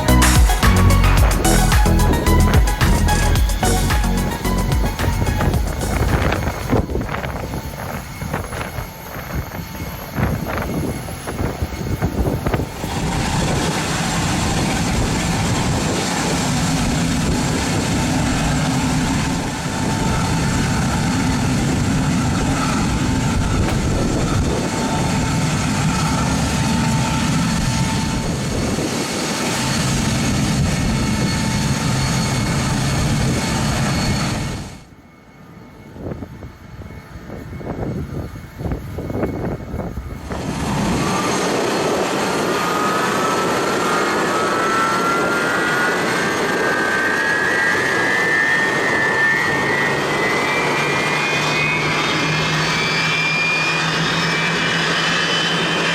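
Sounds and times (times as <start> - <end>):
low rumble: 0.0 - 8.0, 19.1 - 25.9
jet turbine whine: 0.0 - 55.9.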